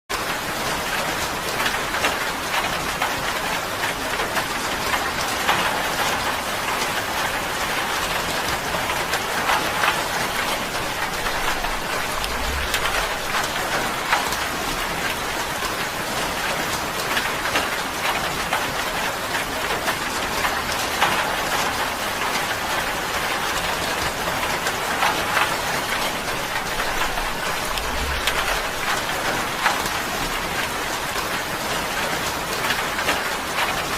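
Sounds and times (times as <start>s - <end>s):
rain on a tin roof: 0.1s - 33.9s
low rumbles: 10.3s - 15.1s, 24.8s - 30.5s.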